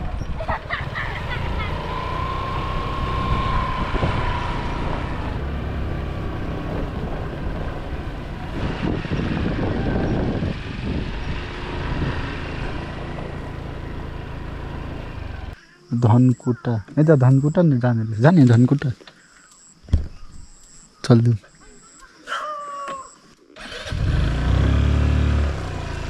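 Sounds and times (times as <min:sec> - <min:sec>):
motor scooter engine running: 0:00.0 - 0:15.6, 0:23.6 - 0:26.0
wind rumble on microphone: 0:02.8 - 0:12.9.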